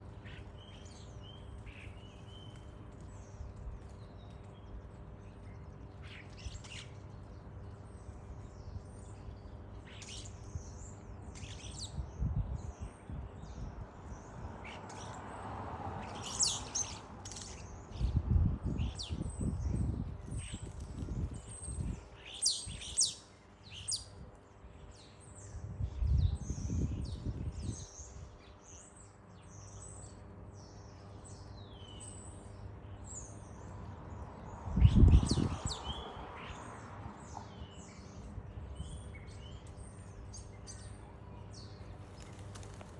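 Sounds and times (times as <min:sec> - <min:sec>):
starlings chirping and whistling: 0:16.0 - 0:18.1, 0:18.8 - 0:24.1.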